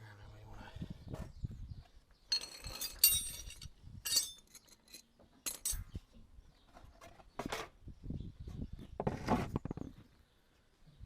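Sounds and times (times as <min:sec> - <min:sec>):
steel tools clinking: 0:02.3 - 0:05.9.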